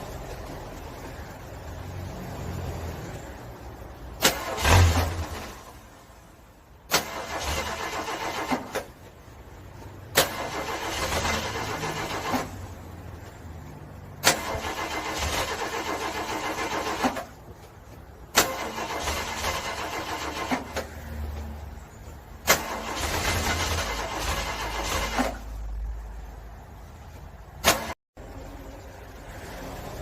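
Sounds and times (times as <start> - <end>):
car starter cranking engine: 4.1 - 5.8, 6.9 - 9.0, 10.1 - 12.8, 14.2 - 17.4, 18.3 - 21.0, 22.4 - 25.6.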